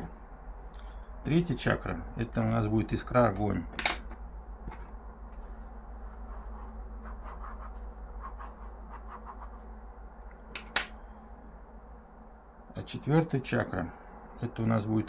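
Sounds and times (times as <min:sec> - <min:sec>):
low hum: 0:00.0 - 0:15.0
pencil scratching on paper: 0:06.0 - 0:09.6.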